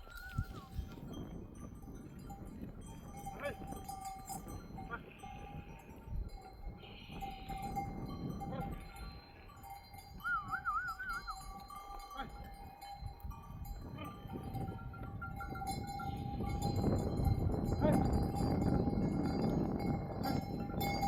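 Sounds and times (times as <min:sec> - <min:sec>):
rustle of moving herd: 0:00.0 - 0:21.0
sheep bells clinking: 0:00.0 - 0:21.0
short wavering animal call: 0:10.3 - 0:11.4.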